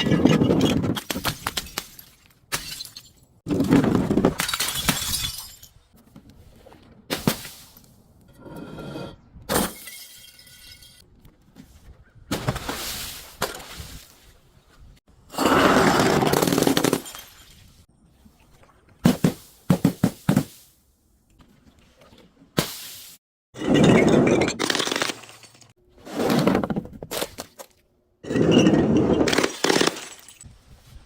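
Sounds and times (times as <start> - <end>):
glass bottles shattering: 1.7 - 3.3, 4.3 - 5.8, 9.6 - 11.0, 16.2 - 17.7, 29.3 - 30.5.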